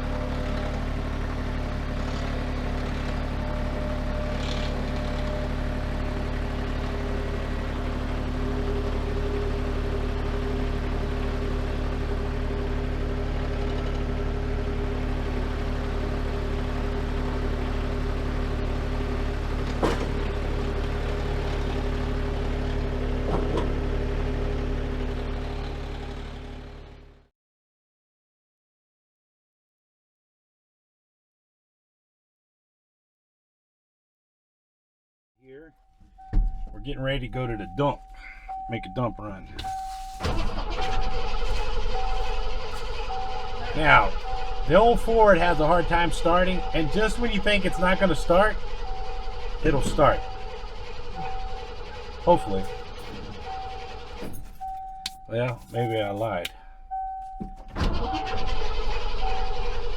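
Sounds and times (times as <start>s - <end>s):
vehicle engine droning: 0.0s - 27.3s, 35.5s - 59.9s.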